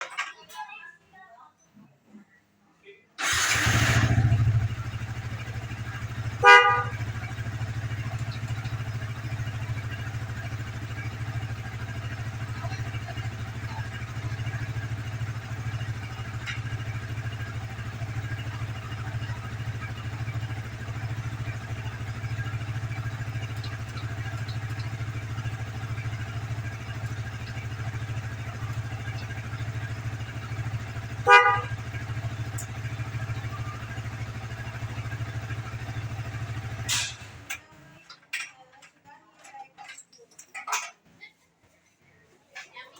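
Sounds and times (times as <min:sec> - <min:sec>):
motorcycle horn toots: 0:03.2 - 0:37.5
motorcycle engine idling: 0:03.2 - 0:38.2.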